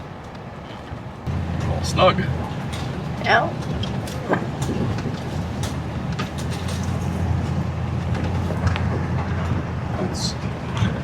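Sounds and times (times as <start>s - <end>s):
truck engine and road rumble: 0.0s - 11.0s
knocks and rattles: 2.5s - 9.8s.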